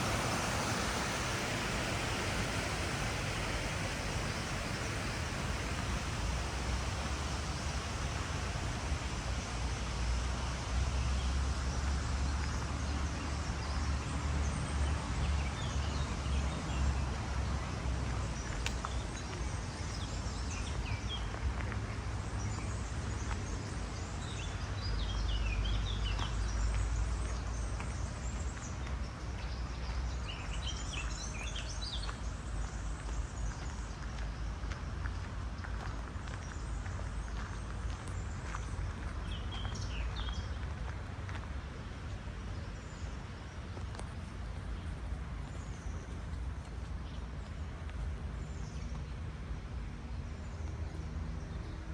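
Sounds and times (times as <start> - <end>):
outdoor hiss: 0.0 - 12.4.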